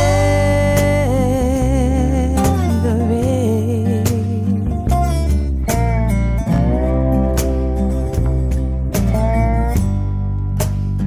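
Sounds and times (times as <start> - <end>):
person singing: 0.0 - 5.4
soul band music: 0.0 - 11.0.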